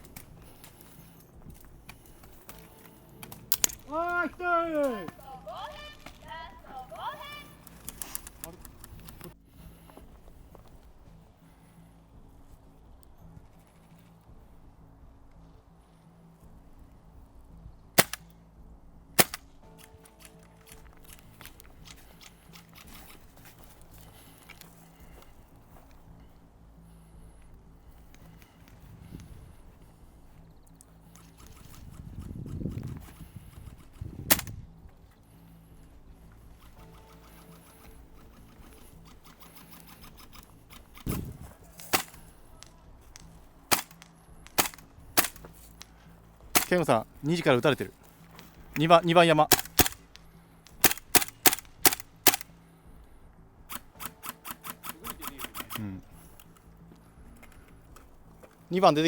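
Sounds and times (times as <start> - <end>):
faint outdoor background: 0.0 - 59.0
airsoft gun shots: 18.0 - 18.2, 19.2 - 19.4, 34.3 - 34.6, 41.9 - 42.2, 44.6 - 45.4, 46.6 - 46.8, 49.5 - 50.0, 50.8 - 52.4.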